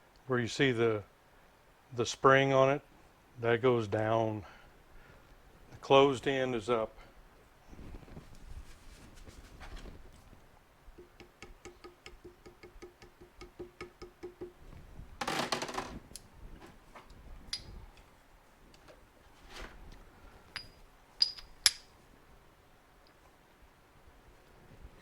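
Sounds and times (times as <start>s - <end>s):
scraping rustle: 7.7s - 10.4s, 19.2s - 20.0s
hammer tapping metal: 11.0s - 14.6s, 20.6s - 21.8s
sharp metallic clinks: 20.6s - 21.9s.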